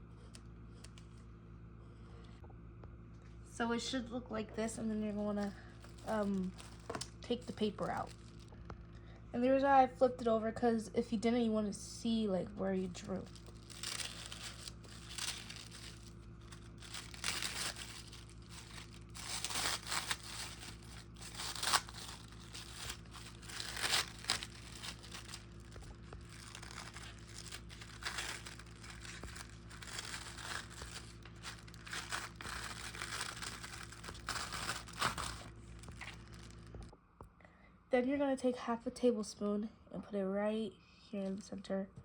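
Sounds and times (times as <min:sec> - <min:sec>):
faint steady hum: 0:00.0 - 0:42.0
plastic wrap and paper crinkling: 0:05.2 - 0:08.7, 0:12.7 - 0:36.9.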